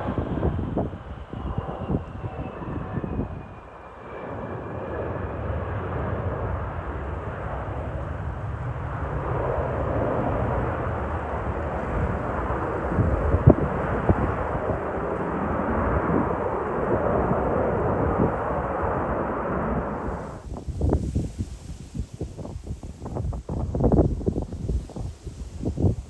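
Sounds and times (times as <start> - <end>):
jet engine rumble: 0.0 - 26.0
wind buffeting microphone: 0.0 - 26.0.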